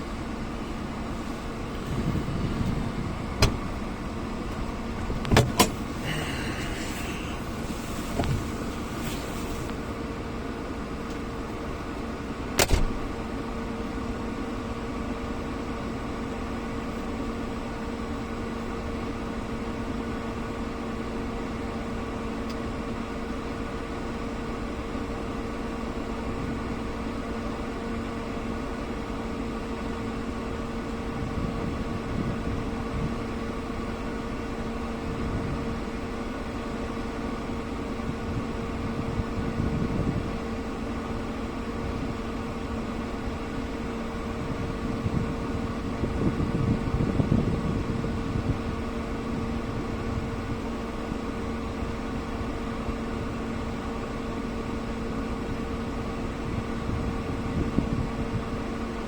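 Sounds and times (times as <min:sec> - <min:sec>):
steady mechanical hum: 0:00.0 - 0:59.0
low rumbling swells: 0:01.0 - 0:05.3.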